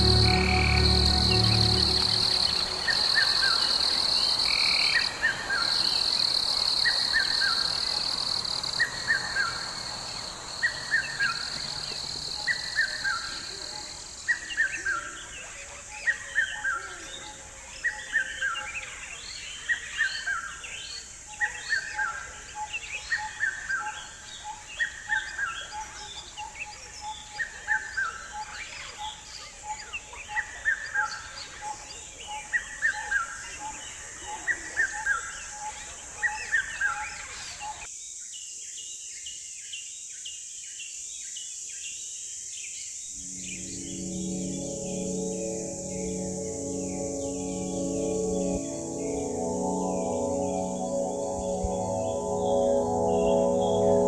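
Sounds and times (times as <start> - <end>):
faint pulsing note: 0.0 - 4.4, 43.2 - 54.0
high insect drone: 0.0 - 14.0, 43.2 - 54.0.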